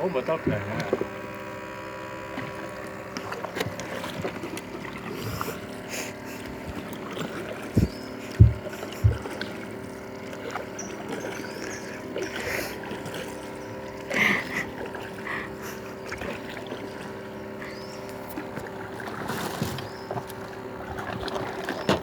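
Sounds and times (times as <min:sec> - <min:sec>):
motor hum: 0:00.0 - 0:22.0
water splashes: 0:00.0 - 0:22.0
light knocks: 0:07.8 - 0:09.6.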